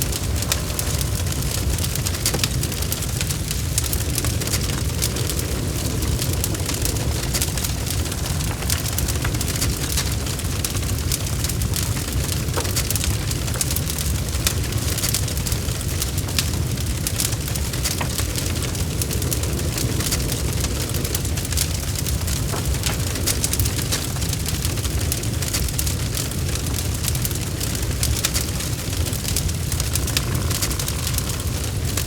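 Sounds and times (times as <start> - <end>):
burning wood crackling and popping: 0.0 - 32.0
fire rumbling: 0.0 - 32.0.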